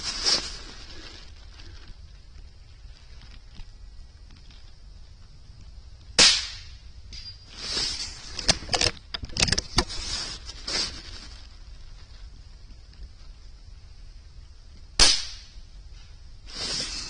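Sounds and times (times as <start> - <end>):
rifle shot: 6.2 - 6.8, 15.0 - 15.6.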